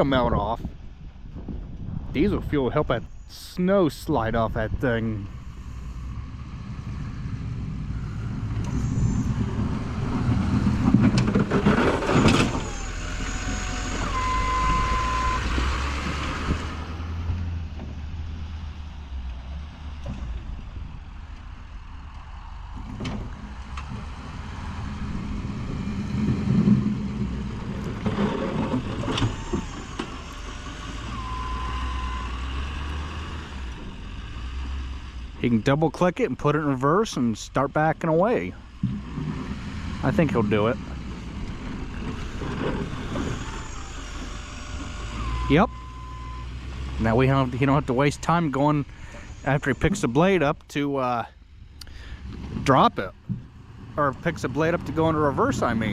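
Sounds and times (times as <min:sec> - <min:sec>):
truck engine running under load: 0:03.8 - 0:55.9
plow blade scraping snow: 0:04.6 - 0:21.2, 0:22.6 - 0:51.2, 0:51.9 - 0:55.9
electronic beep: 0:13.6 - 0:15.5.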